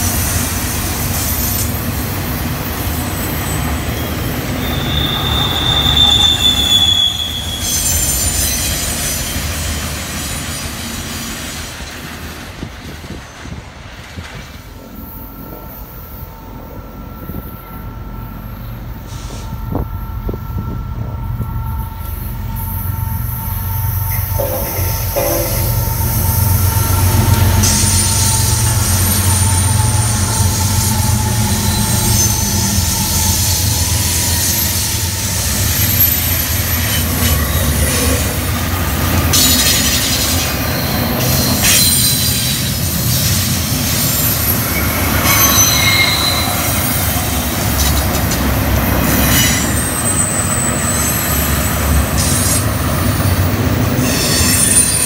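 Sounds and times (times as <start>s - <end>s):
diesel locomotive engine rumble: 0.0s - 55.0s
train wheels squealing and clattering: 0.0s - 55.0s
wheels screeching: 3.1s - 9.7s.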